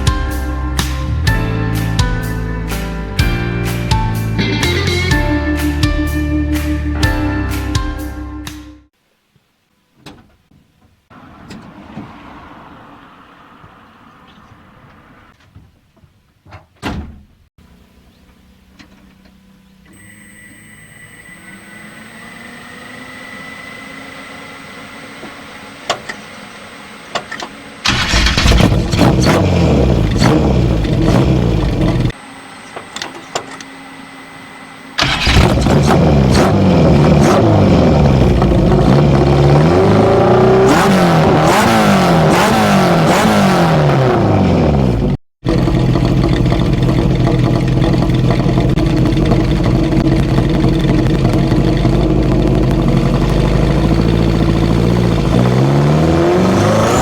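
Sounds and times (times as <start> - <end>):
car engine revving: 11.1 - 15.4, 27.8 - 32.2, 35.0 - 57.0.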